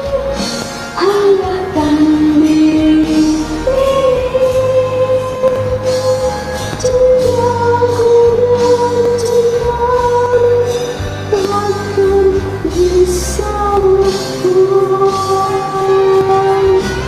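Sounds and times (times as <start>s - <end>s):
bass line: 0.0s - 17.0s
held lead melody: 0.0s - 17.0s.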